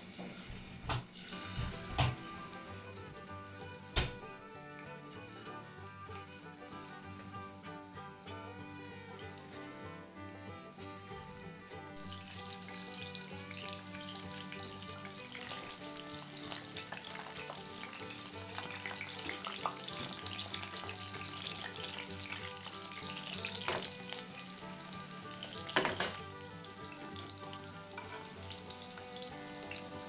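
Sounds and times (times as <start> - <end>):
chicken sizzling in oil: 0.0 - 5.2, 12.0 - 30.0.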